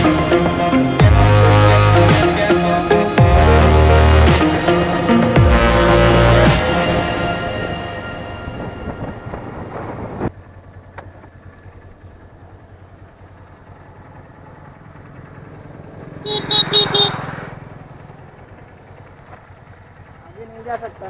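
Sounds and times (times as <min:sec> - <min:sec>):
motorcycle engine idling: 0:10.3 - 0:21.0
horn beeps: 0:16.2 - 0:17.3.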